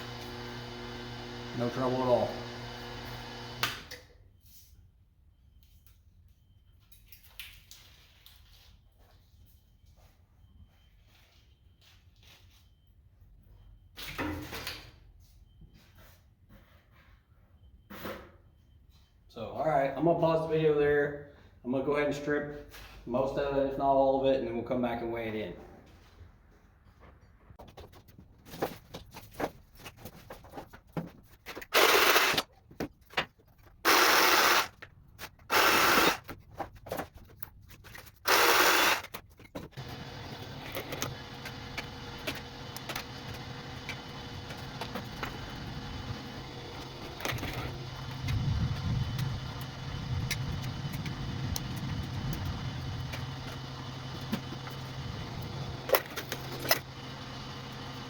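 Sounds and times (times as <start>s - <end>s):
small electric motor humming: 0.0s - 3.9s, 31.8s - 32.4s, 33.9s - 34.7s, 35.5s - 36.2s, 38.3s - 39.1s, 39.8s - 58.0s.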